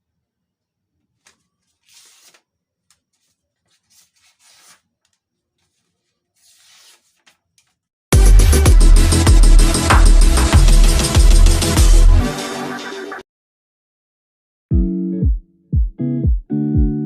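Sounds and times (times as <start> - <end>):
faint rubbing strokes: 5.6 - 7.3.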